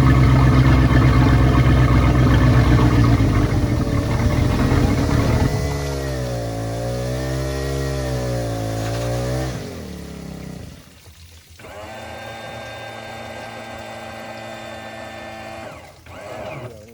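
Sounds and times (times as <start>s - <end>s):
boat engine idling: 0.0s - 10.9s
steady mechanical hum: 0.0s - 10.9s.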